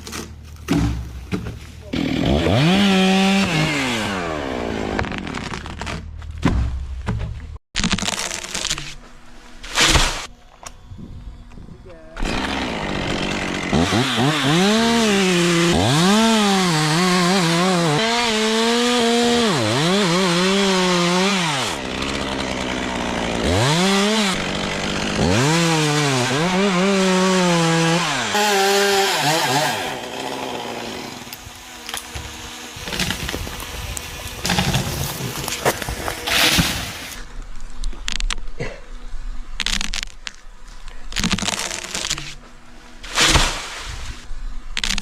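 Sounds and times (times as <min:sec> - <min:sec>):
chainsaw cutting wood: 0:01.9 - 0:06.0, 0:12.2 - 0:37.2.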